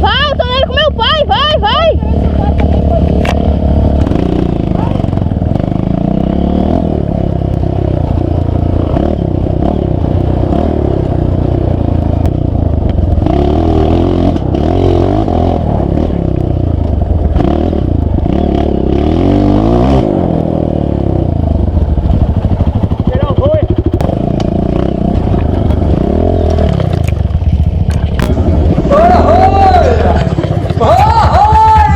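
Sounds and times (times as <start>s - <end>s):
off-road vehicle engine revving: 0.0s - 31.9s
vehicle clattering and scraping: 21.6s - 31.9s.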